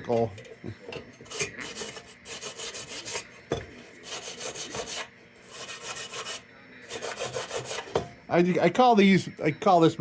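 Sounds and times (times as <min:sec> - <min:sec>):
wire brush scrubbing metal: 0:01.2 - 0:03.3, 0:04.0 - 0:08.0.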